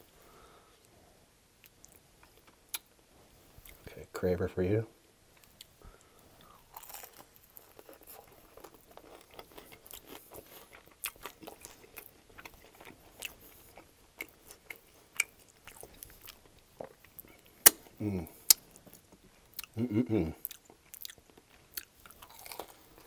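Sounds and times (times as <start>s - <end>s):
crunchy chewing: 5.4s - 23.0s.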